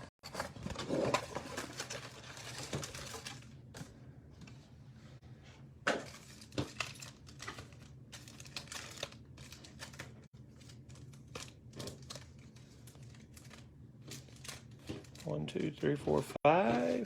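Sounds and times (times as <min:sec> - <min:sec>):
plastic wrapping crinkling: 0:06.1 - 0:15.4.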